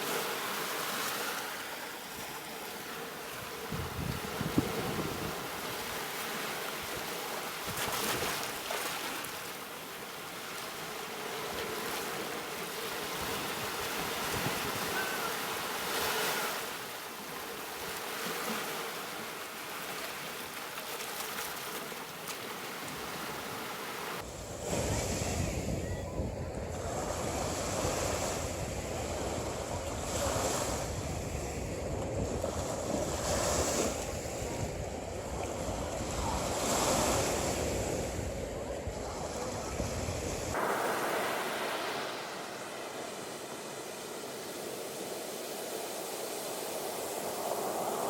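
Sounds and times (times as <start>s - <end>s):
ocean surf washing: 0.0s - 48.0s
wind on the microphone: 3.3s - 6.1s, 12.8s - 16.4s, 24.2s - 48.0s.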